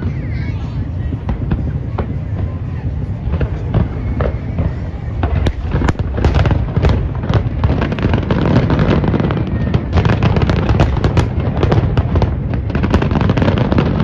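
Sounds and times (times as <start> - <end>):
fireworks bangs and crackles: 0.0 - 14.0
low rumble of booms: 0.8 - 14.0.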